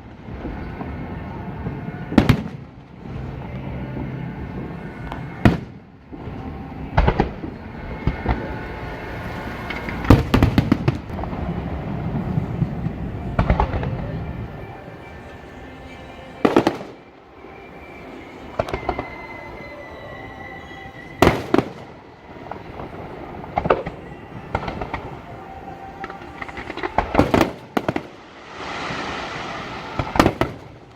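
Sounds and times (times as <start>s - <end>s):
fireworks booms: 0.0s - 8.6s, 9.6s - 14.4s, 16.4s - 17.0s, 21.2s - 25.2s, 26.1s - 30.9s
fireworks crackling reports: 0.0s - 19.6s, 21.0s - 30.9s.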